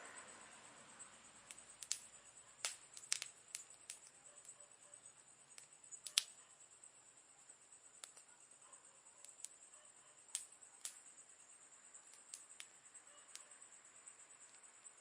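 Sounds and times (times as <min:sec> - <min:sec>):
faint hiss: 0:00.0 - 0:15.0
campfire crackling and popping: 0:01.4 - 0:04.6, 0:05.5 - 0:06.4, 0:07.9 - 0:08.3, 0:09.2 - 0:11.2, 0:12.0 - 0:13.4.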